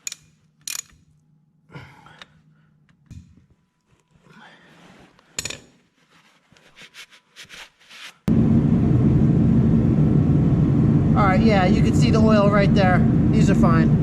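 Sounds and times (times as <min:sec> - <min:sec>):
small metal clicks: 0:00.0 - 0:01.3.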